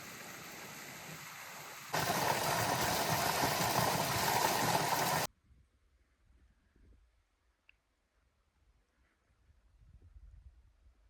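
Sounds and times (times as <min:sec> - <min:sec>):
steady rushing noise: 0:00.0 - 0:05.3.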